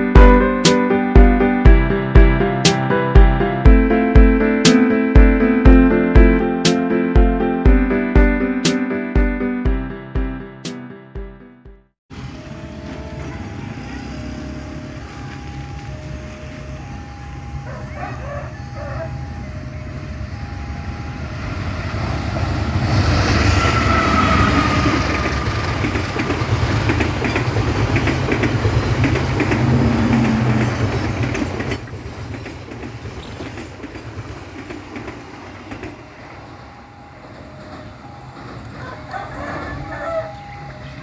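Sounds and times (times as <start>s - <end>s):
train rumbling past: 12.1s - 41.0s
wheels clacking over rail joints: 22.4s - 41.0s.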